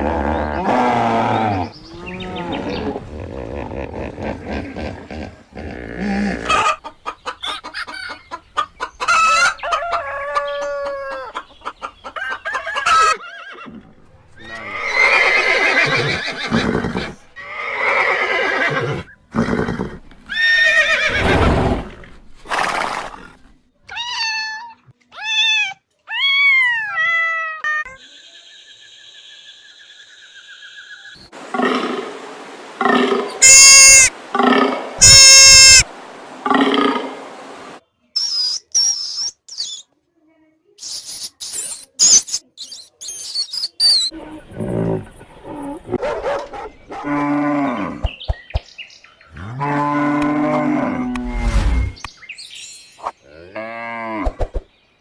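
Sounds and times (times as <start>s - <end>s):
farm animal calls: 0.0s - 22.6s, 31.2s - 37.8s
chicken clucking: 6.4s - 13.3s
rooster crowing: 31.4s - 37.8s.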